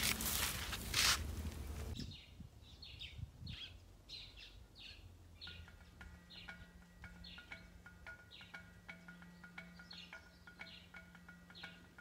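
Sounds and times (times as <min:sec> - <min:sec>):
birds chirping: 0:01.3 - 0:12.0
soft mallet percussion music: 0:05.4 - 0:12.0.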